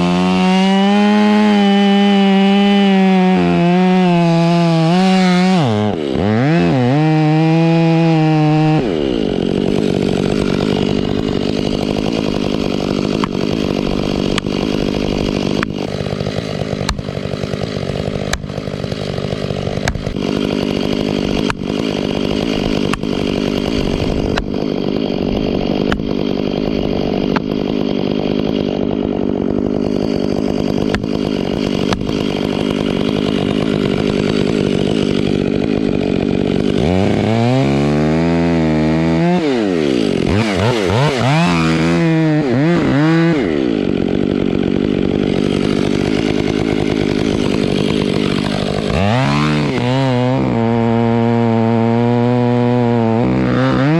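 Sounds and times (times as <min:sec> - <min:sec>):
chainsaw running at high revs: 0:00.0 - 0:53.9
sharp knocks: 0:19.8 - 0:20.3.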